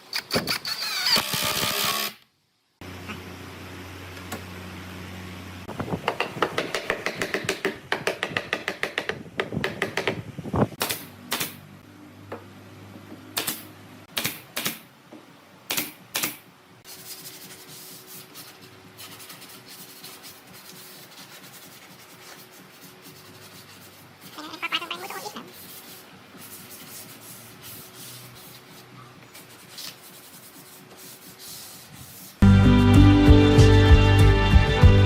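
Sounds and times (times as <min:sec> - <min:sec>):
sharp taps and knocks: 0:06.1 - 0:10.2.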